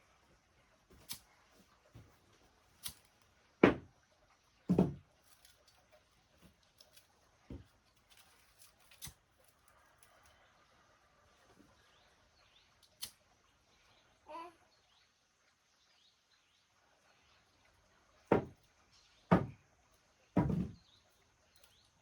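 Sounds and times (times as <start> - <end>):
heavier knocks: 4.7 - 5.0, 18.3 - 18.5, 19.3 - 19.6, 20.4 - 20.8.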